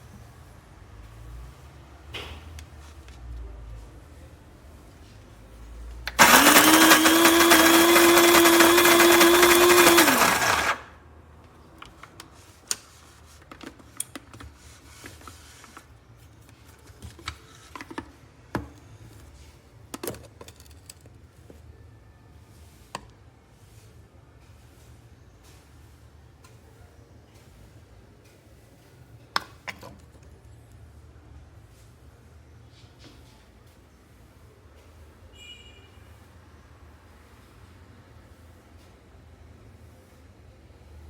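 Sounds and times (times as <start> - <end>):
coffee grinder motor: 6.1 - 11.0.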